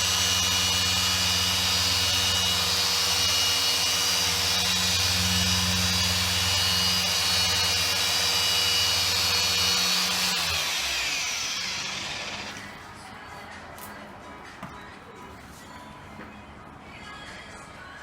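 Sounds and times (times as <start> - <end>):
car polishing machine running: 0.0 - 12.7.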